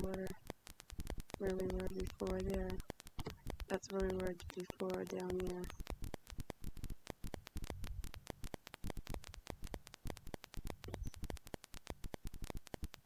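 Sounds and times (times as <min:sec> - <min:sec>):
rapid crackling clicks: 0:00.0 - 0:13.0.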